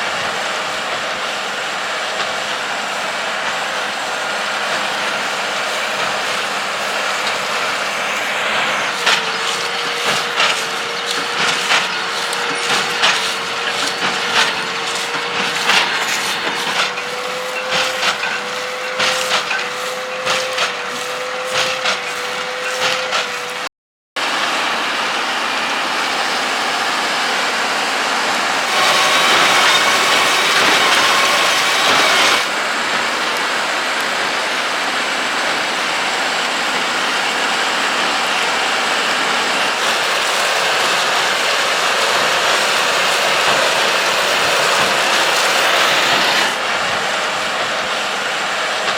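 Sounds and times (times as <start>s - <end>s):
tractor and baler humming: 0.0s - 48.9s.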